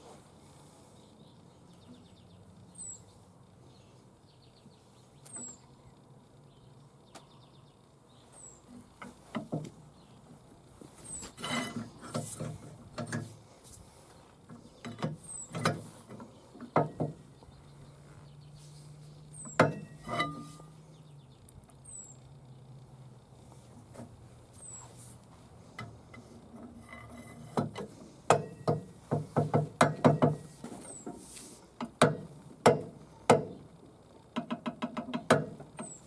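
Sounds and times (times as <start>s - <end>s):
bird chirping: 1.0s - 9.0s, 14.1s - 22.7s, 24.6s - 24.9s, 35.8s - 36.0s
hand tools knocking and clanking: 11.4s - 13.4s, 14.5s - 17.2s, 19.4s - 20.7s, 26.6s - 30.5s, 31.8s - 33.6s, 34.4s - 36.0s.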